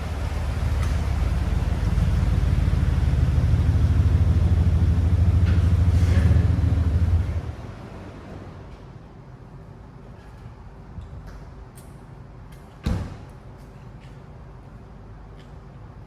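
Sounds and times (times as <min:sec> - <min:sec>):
truck engine rumbling: 0:00.0 - 0:08.3.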